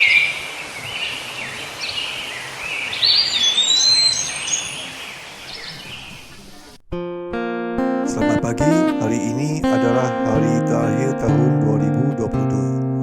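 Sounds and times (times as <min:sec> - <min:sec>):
birds chirping and whistling: 0:00.0 - 0:06.8
outdoor background noise: 0:00.0 - 0:06.9.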